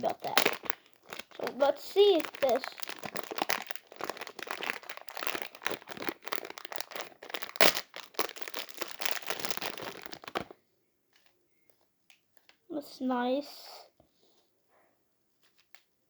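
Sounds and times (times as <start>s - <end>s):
plastic packaging crinkling: 0.0s - 10.6s, 15.4s - 15.9s.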